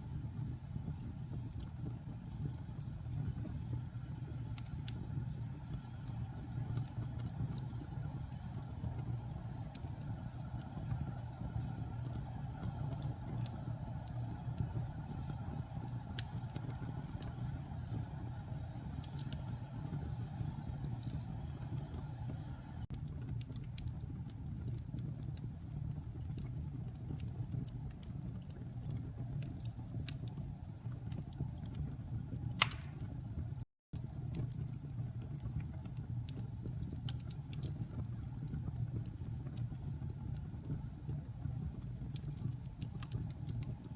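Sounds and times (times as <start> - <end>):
fire crackling in fireplace: 0.0 - 43.9
low fire rumble: 0.0 - 43.9
sharp loud pop: 32.6 - 33.0.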